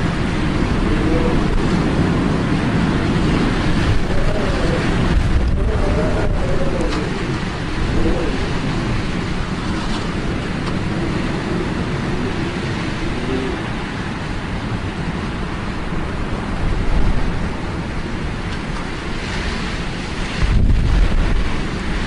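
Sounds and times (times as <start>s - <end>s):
steady low rushing noise: 0.0s - 19.2s.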